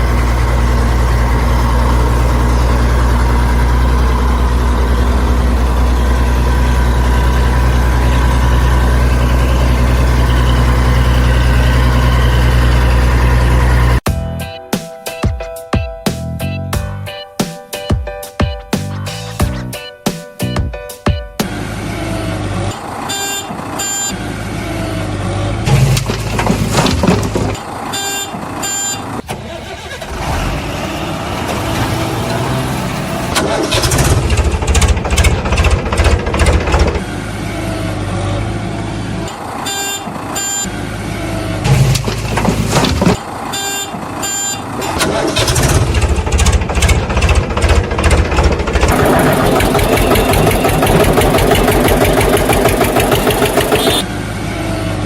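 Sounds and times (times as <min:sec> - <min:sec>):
vehicle engine rumble: 0:00.0 - 0:14.4, 0:21.4 - 0:55.0.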